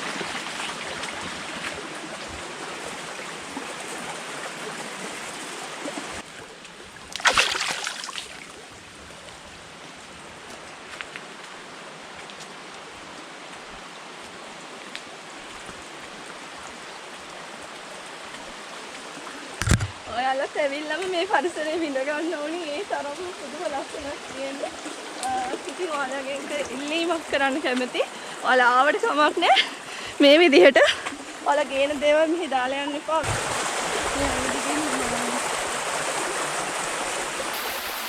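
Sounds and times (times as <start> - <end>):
flowing stream water: 0.0 - 38.0.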